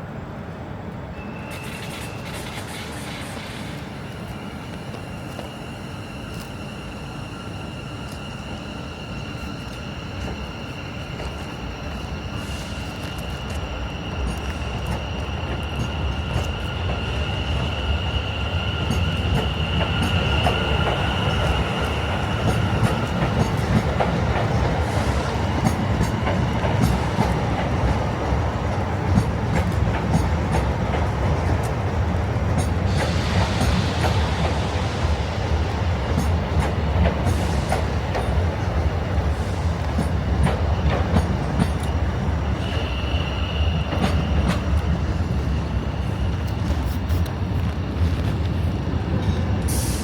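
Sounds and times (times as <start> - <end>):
train rumbling on rails: 0.0 - 50.0
wheel squeal: 1.2 - 23.8.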